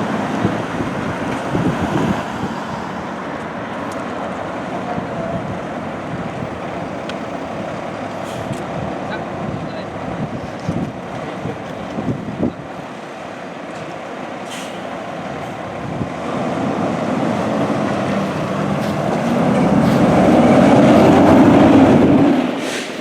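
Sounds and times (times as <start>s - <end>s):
heavy vehicle passing: 0.0s - 9.4s, 14.6s - 23.0s.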